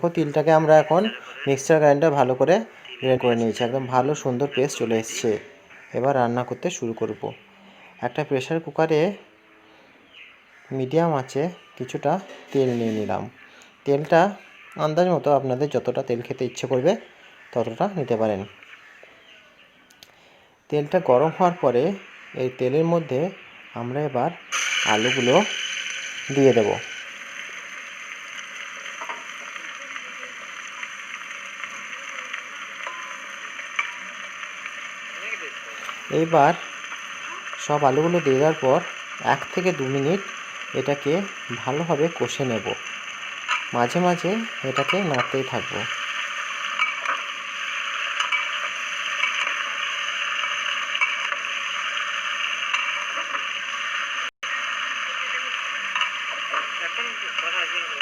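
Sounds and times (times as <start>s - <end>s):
potatoes sizzling in hot oil: 20.8s - 58.0s.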